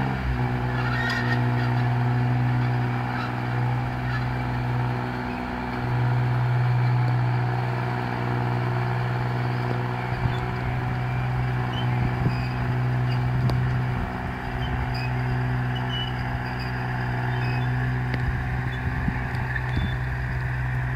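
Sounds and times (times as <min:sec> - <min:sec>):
diesel tractor engine running: 0:00.0 - 0:20.9.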